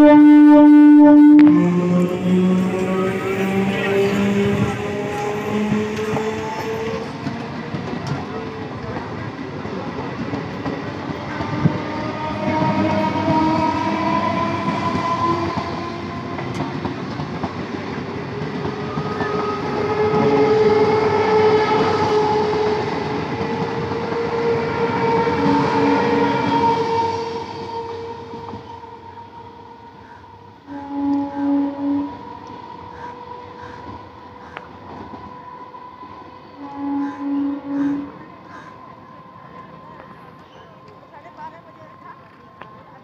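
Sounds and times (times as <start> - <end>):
train wheels rumbling and clattering: 1.4 - 31.3, 32.1 - 35.5.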